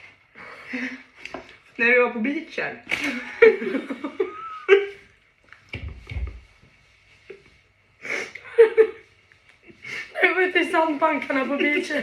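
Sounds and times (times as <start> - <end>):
women laughing: 3.0 - 5.2, 8.3 - 9.1.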